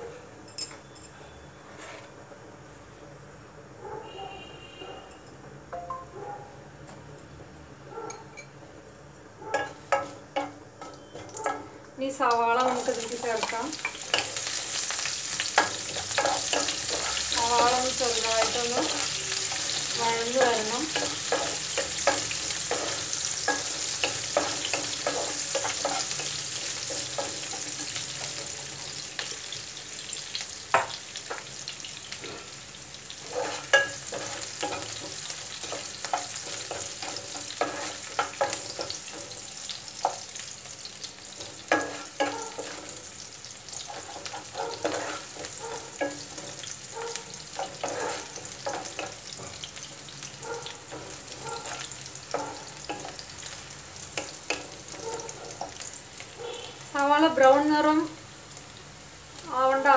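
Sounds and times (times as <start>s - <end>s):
onion sizzling in hot oil: 9.1s - 59.9s
spatula scraping pan: 12.9s - 29.3s, 32.2s - 40.4s, 41.3s - 49.6s, 50.9s - 53.3s.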